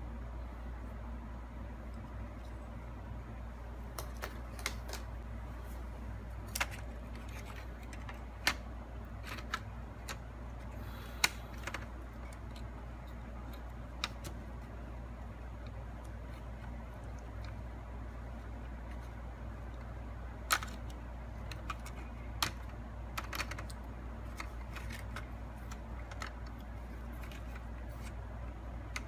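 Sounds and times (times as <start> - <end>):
plastic parts clicking and tapping: 6.4 - 14.7, 18.3 - 29.0.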